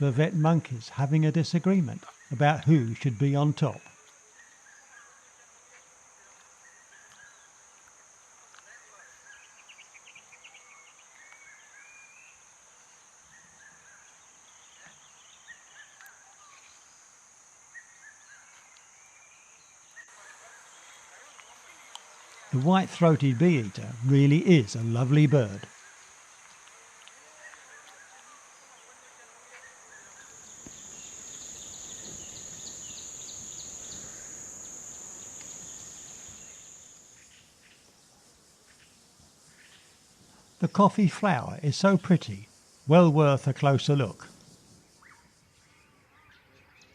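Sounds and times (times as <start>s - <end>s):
high insect drone: 0.0s - 46.4s
high-pitched insect drone: 28.4s - 37.4s
bird chirping: 29.5s - 37.6s.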